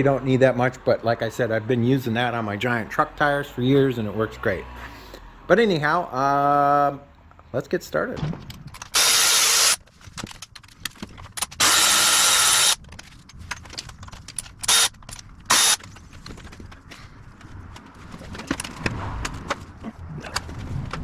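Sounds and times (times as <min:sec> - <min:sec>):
tools clicking and knocking: 0:08.4 - 0:16.9
power tool bursts: 0:08.9 - 0:09.8, 0:11.6 - 0:12.8, 0:14.6 - 0:14.9, 0:15.5 - 0:15.8.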